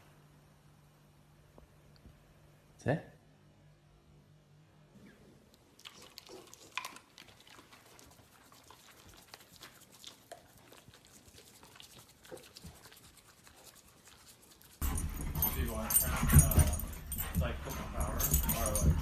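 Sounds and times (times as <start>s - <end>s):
dog paws clicking and pattering: 5.8s - 19.0s.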